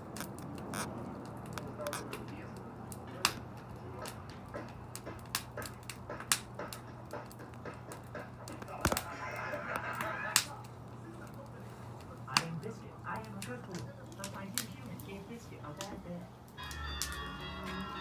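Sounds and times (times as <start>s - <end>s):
wood fire crackling: 0.0s - 18.0s
soft rustling hiss: 8.6s - 18.0s.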